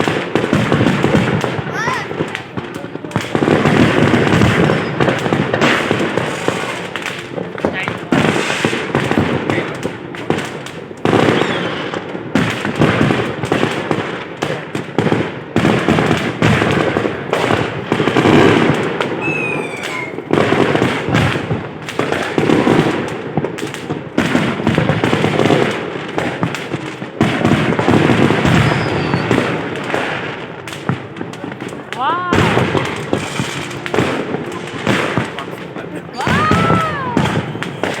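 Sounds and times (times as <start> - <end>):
fireworks booming and crackling: 0.0 - 38.0
falling firework whistle: 4.4 - 5.1, 11.2 - 12.0, 19.0 - 20.3, 28.2 - 29.7, 36.1 - 38.0.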